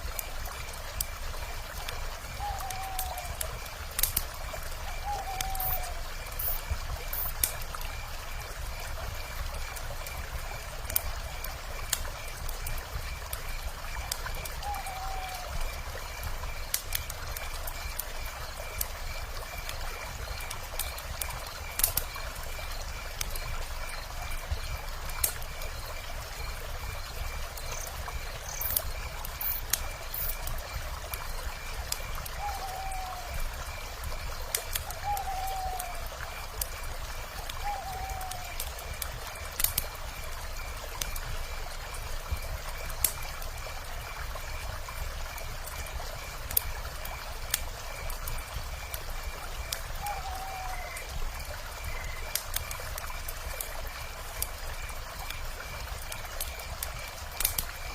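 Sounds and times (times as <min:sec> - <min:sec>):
wood fire crackling and popping: 0:00.0 - 0:57.9
owl hooting: 0:02.4 - 0:03.4, 0:05.0 - 0:06.1, 0:14.6 - 0:15.5, 0:32.4 - 0:33.4, 0:35.0 - 0:36.0, 0:37.6 - 0:38.6, 0:50.0 - 0:51.0.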